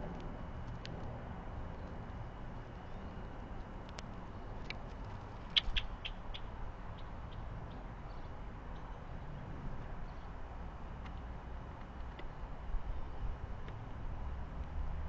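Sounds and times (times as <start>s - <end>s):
small bird chirping: 5.4s - 8.9s.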